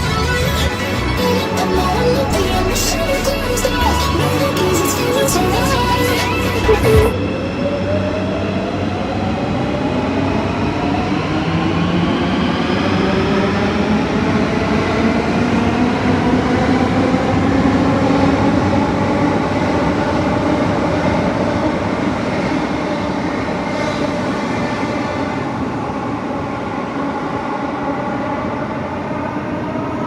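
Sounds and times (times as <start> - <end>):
mechanical rumble: 0.0 - 7.1.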